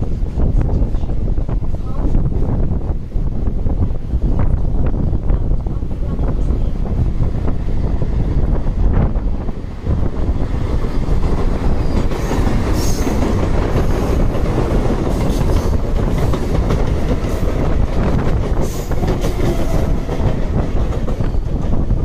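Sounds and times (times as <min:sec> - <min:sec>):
train wheels clattering on track: 0:06.2 - 0:22.0.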